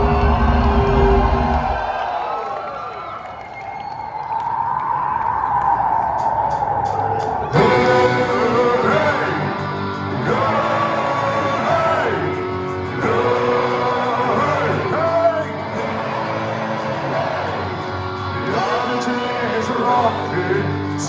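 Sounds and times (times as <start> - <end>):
drums: 0.0 - 2.2, 6.0 - 21.0
crowd yelling: 0.0 - 21.0
electric guitars: 7.4 - 21.0
person singing: 7.4 - 21.0.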